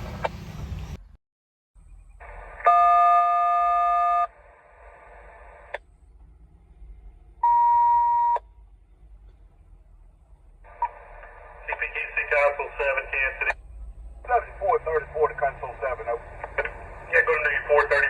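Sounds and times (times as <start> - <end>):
dual-tone beep: 7.4 - 8.4
single-pitch beep: 7.4 - 8.4
radio hiss: 10.7 - 13.6, 14.3 - 18.0.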